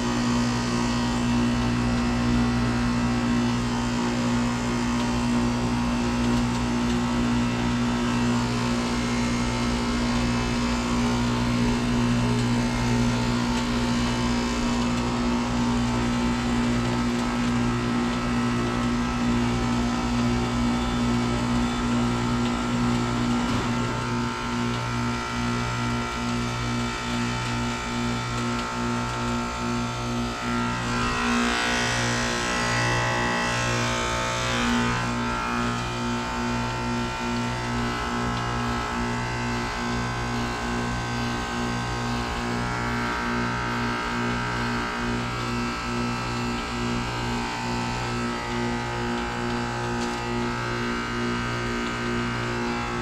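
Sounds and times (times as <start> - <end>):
heat pump humming: 0.0 - 53.0.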